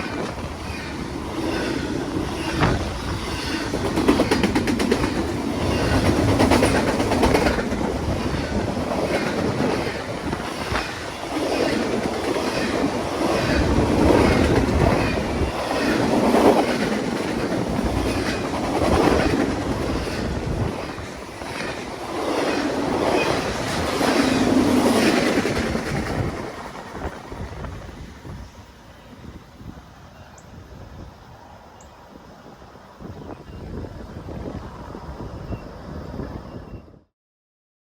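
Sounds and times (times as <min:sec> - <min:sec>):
train wheels clicking on rail joints: 0:00.0 - 0:28.6.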